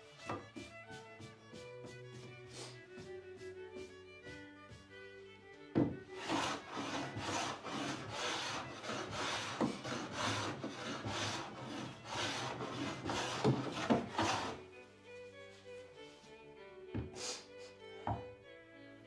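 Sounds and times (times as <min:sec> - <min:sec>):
sharp knock on wood: 0:05.8 - 0:06.0
wood rubbing strokes: 0:06.1 - 0:14.6.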